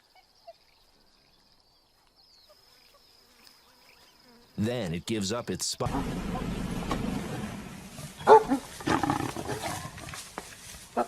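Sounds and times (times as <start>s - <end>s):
insect chorus buzzing: 0.0s - 4.6s.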